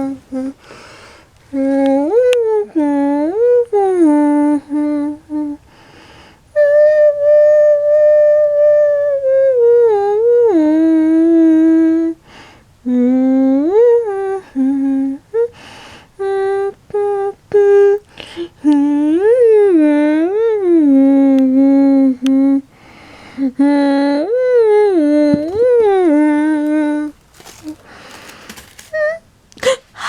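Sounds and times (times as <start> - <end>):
person humming a slow tune: 0.0 - 0.6, 1.5 - 5.6, 6.6 - 12.2, 12.9 - 15.5, 23.4 - 29.8.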